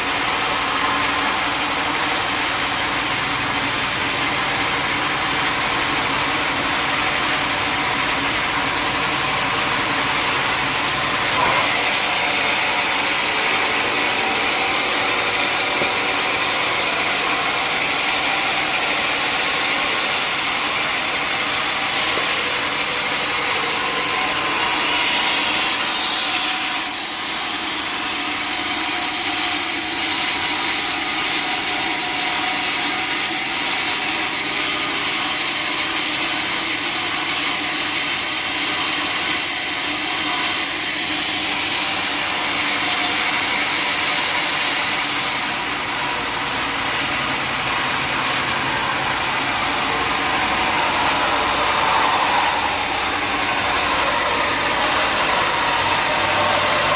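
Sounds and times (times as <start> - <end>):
saw cutting through log: 0.0 - 56.9
engine running under load: 45.5 - 56.9.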